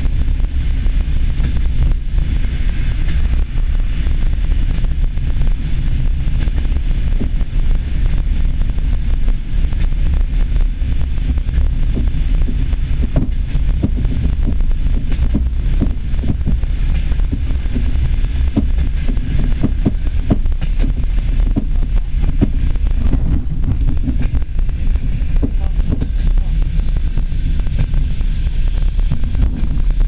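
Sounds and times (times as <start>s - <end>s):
train wheels rumbling on rails: 0.0s - 30.0s
train car knocks and rattles: 10.7s - 30.0s.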